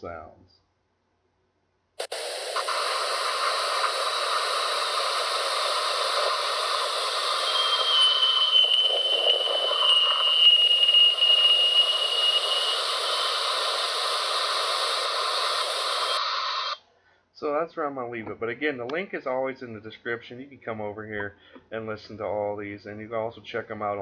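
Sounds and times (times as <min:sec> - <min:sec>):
static-like hiss: 0:02.0 - 0:16.8
thin whistling tone: 0:03.4 - 0:16.8.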